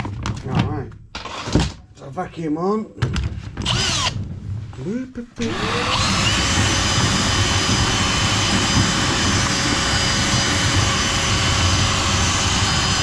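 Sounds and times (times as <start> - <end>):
vacuum cleaner running: 5.2 - 13.0.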